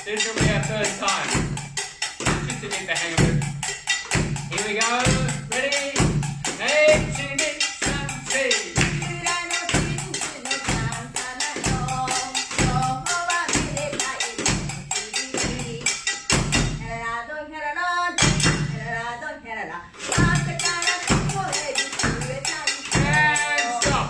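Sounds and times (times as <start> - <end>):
low drum beating: 0.0 - 13.9
sharp percussion strikes: 0.0 - 16.9, 18.2 - 18.9, 20.0 - 24.0
person singing: 4.5 - 16.0, 18.8 - 24.0.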